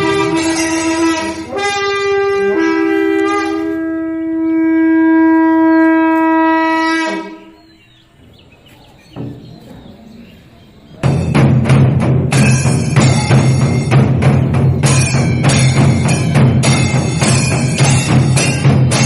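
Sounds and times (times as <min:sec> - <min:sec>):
horn-like wind instrument note: 0:00.0 - 0:07.7.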